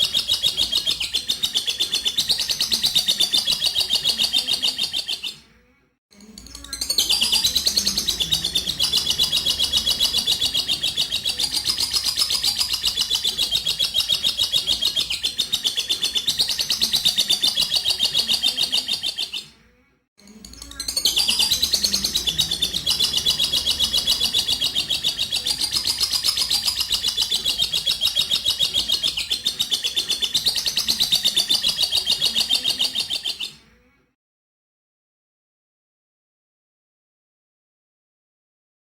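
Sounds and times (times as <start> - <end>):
lovebird chattering trill: 6.8 - 19.4, 20.7 - 33.5.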